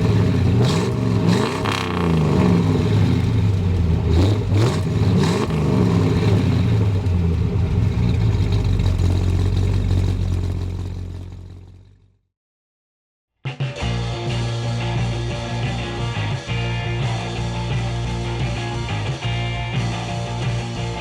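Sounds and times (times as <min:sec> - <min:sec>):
car engine revving: 0:00.0 - 0:12.1.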